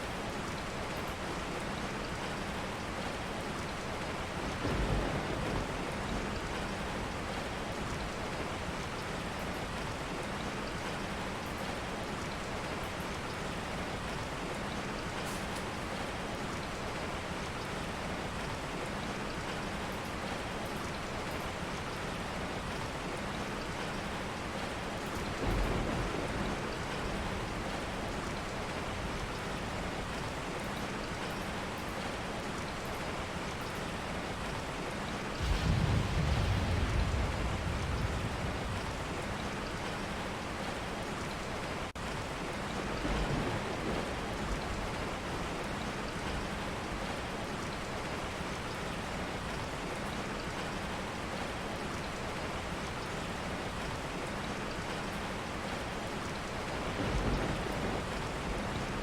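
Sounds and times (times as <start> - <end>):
steady rain: 0.0 - 59.0
low thunder rumbles: 4.4 - 8.4, 25.2 - 29.8, 35.3 - 40.9, 42.8 - 45.3, 56.6 - 59.0.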